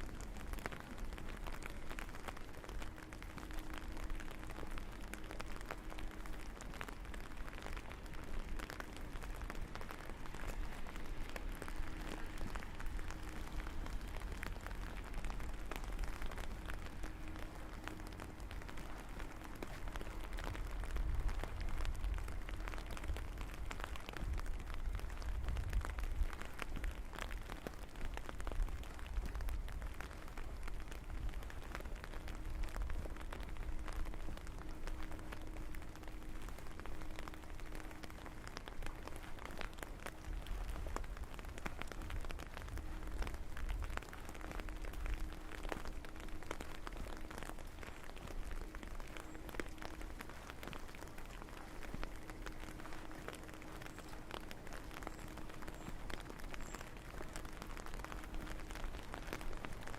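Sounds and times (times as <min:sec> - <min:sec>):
faint hum: 0:00.0 - 0:59.9
low rumble: 0:00.0 - 0:59.9
rain falling: 0:00.0 - 0:59.9.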